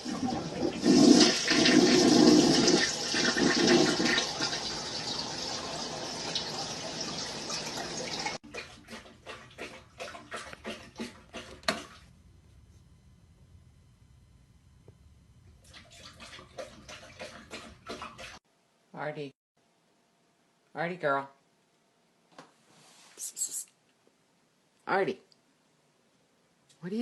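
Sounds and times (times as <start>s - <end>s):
toilet flushing: 0.0s - 12.1s, 15.6s - 18.4s.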